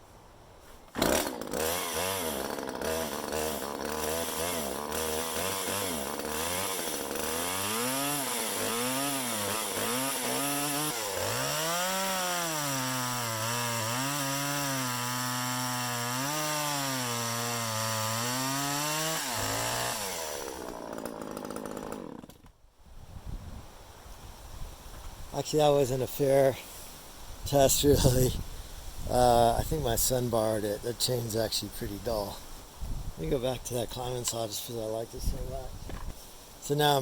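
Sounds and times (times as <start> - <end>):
chainsaw revving and cutting wood: 0.9 - 22.5.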